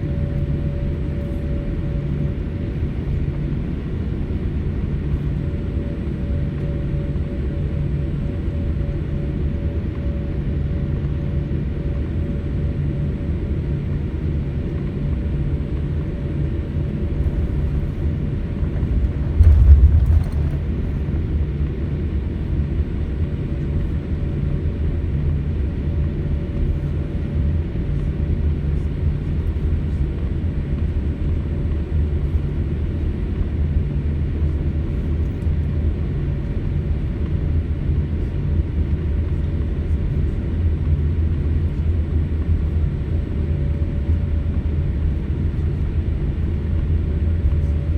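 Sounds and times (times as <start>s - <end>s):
jet engines rumbling in cabin: 0.0s - 47.9s
low thump: 18.7s - 21.2s.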